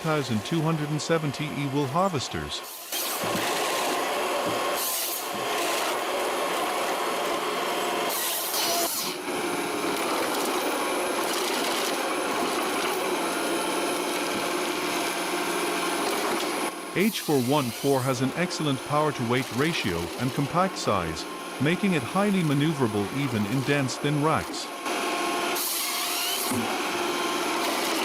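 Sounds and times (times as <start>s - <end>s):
forestry harvester machine noise: 0.0s - 28.0s
harsh sawing bursts: 0.0s - 28.0s.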